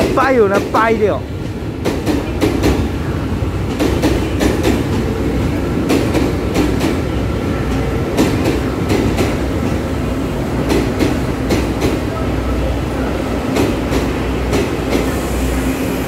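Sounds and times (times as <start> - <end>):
train low rumble: 0.0 - 16.0
wheels clacking over rail joints: 10.6 - 12.2.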